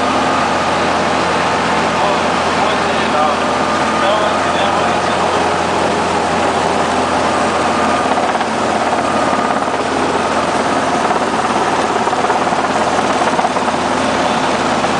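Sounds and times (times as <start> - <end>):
helicopter engine and rotor: 0.0 - 14.9.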